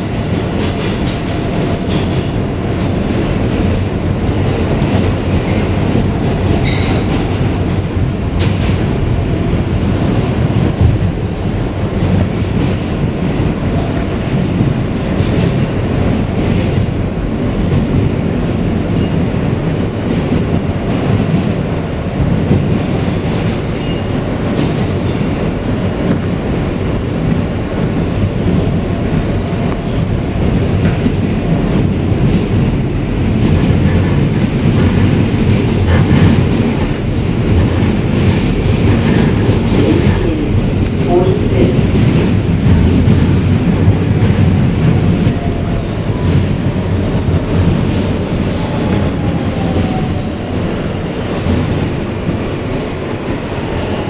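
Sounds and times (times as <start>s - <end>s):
subway wheels rumbling on rail: 0.0s - 54.0s.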